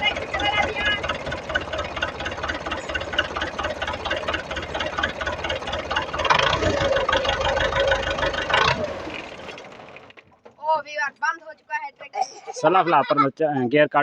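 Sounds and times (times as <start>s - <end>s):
diesel tractor engine idling: 0.0s - 13.2s.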